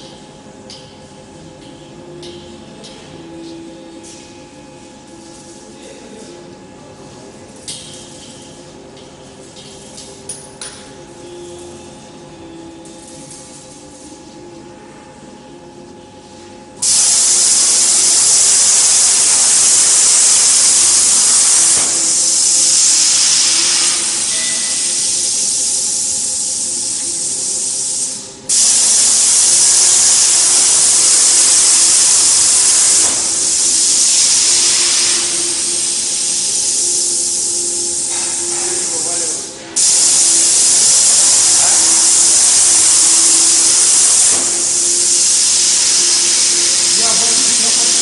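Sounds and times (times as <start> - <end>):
faint machine hum: 0.0 - 48.0
plasma cutter arc hissing: 16.8 - 48.0.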